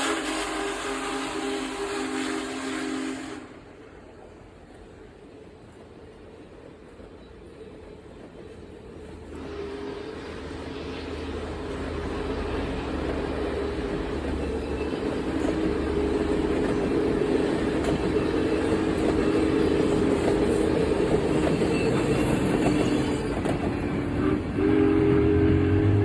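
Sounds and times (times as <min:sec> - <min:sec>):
locomotive horn blast: 0:00.0 - 0:03.7, 0:09.3 - 0:10.9, 0:24.1 - 0:26.0
moving train rumble and clatter: 0:00.0 - 0:26.0.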